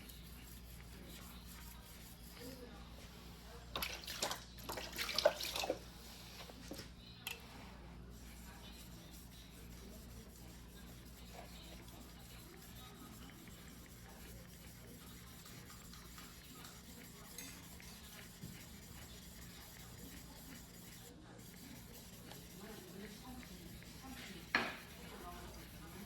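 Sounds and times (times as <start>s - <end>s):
knife rubbing on whetstone: 0.0s - 2.6s, 8.1s - 26.0s.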